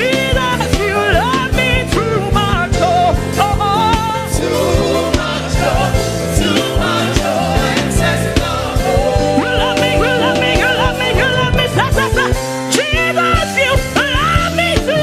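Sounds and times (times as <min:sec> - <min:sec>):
gospel band playing: 0:00.0 - 0:15.0
keyboard chords: 0:04.5 - 0:14.0
drum beat: 0:06.7 - 0:12.9
person singing: 0:08.6 - 0:13.1.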